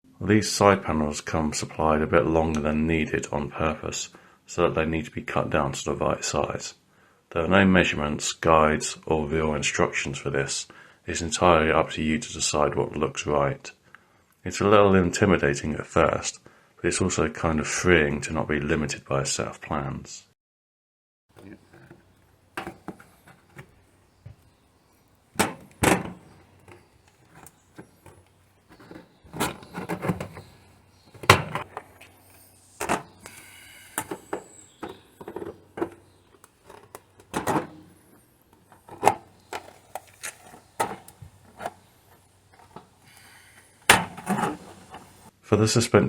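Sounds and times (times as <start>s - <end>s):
knocks and clunks on sheet panels: 21.3s - 24.5s, 25.3s - 31.9s, 32.8s - 33.3s, 34.0s - 43.1s, 43.9s - 45.3s
scraping on sheet panels: 21.3s - 45.3s.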